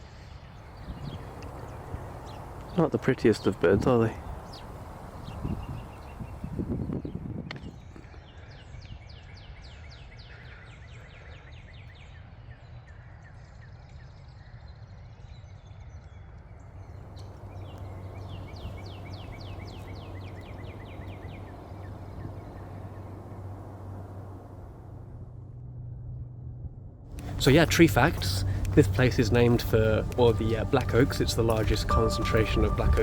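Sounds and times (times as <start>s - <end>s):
low steady hum: 0.0s - 7.3s, 16.8s - 33.0s
songbird singing rapid high notes: 0.7s - 7.1s, 17.1s - 24.0s, 27.2s - 33.0s.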